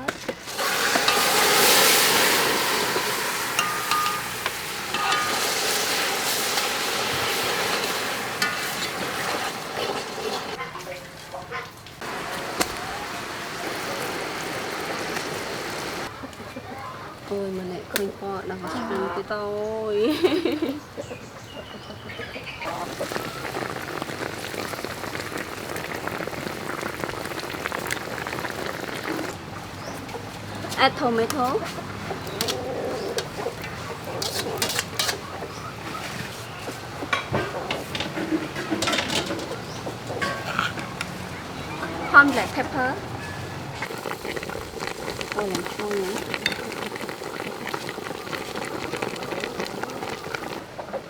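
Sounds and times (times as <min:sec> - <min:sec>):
fish sizzling in a pan: 0:00.4 - 0:10.6, 0:12.0 - 0:16.1, 0:22.7 - 0:29.4, 0:32.2 - 0:43.0, 0:43.8 - 0:50.6
utensil metallic clinks: 0:03.6 - 0:05.7.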